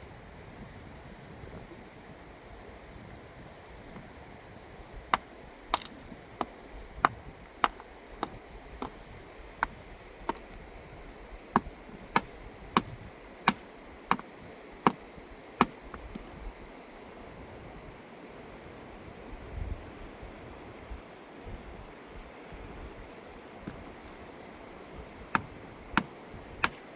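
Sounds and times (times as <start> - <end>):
sharp hard clinking strikes: 11.6 - 14.2.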